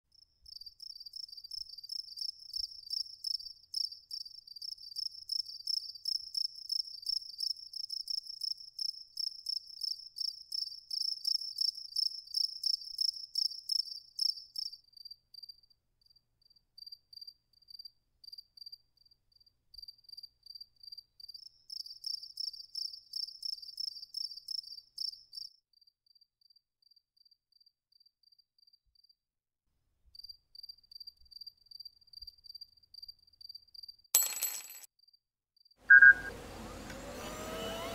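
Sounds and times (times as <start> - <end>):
crickets chirping: 0.1 - 25.5
faint slow single chirp: 35.9 - 36.4.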